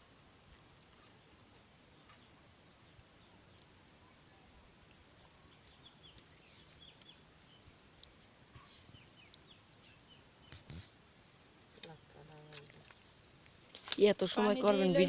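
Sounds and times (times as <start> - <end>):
quick high chirps and ticks: 4.5 - 11.5.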